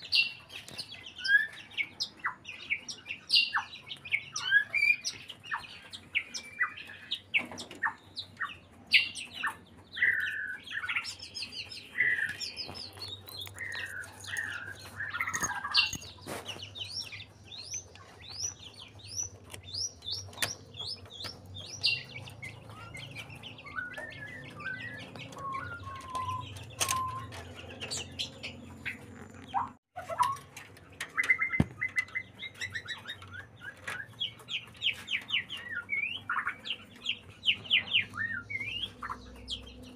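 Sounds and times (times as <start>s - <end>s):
bird singing whistled phrases: 22.8s - 27.3s.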